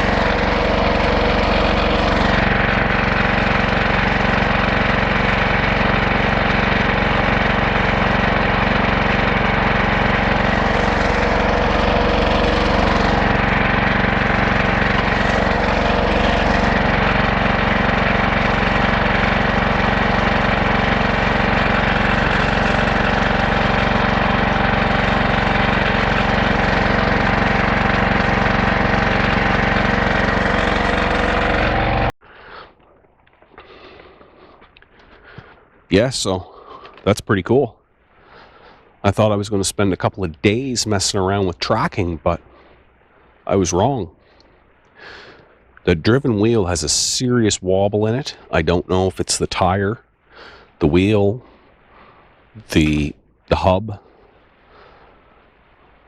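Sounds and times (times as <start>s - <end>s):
gas engine running steadily: 0.0s - 32.9s, 38.1s - 56.0s.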